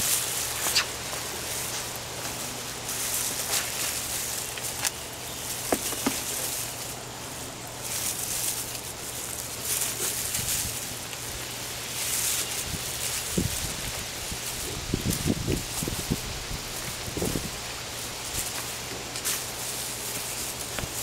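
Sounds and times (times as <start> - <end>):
hands digging through soil: 0.0 - 21.0.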